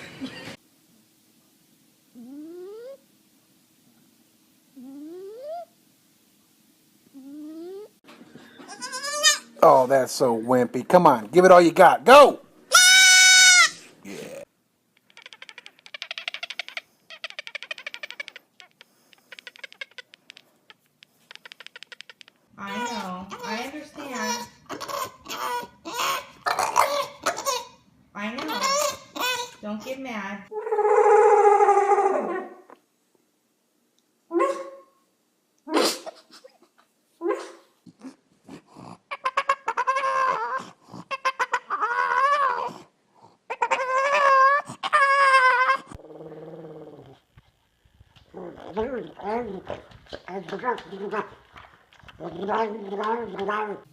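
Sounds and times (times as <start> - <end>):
dog vocalizing: 14.1 - 27.7, 35.7 - 53.9
animal clicking chatter: 15.0 - 27.6.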